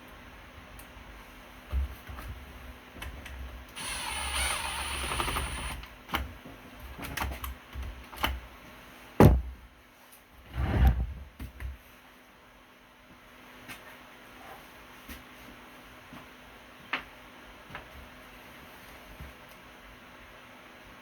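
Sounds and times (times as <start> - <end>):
small mechanical whirr: 3.8 - 5.8.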